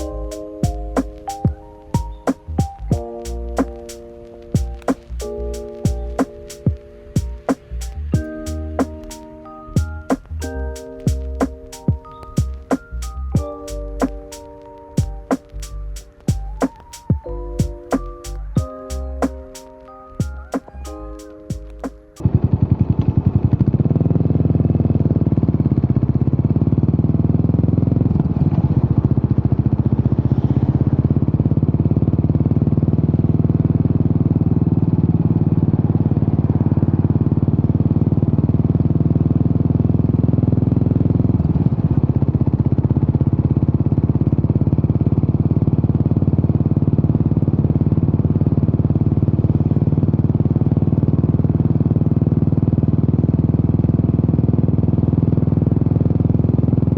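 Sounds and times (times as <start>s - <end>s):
motorcycle engine pulsing exhaust: 21.8s - 56.9s.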